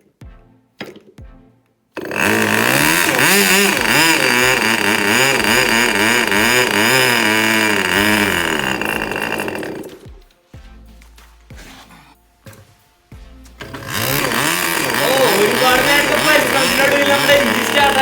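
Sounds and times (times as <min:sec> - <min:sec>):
model aircraft engine running: 0:02.0 - 0:10.1, 0:13.6 - 0:18.0.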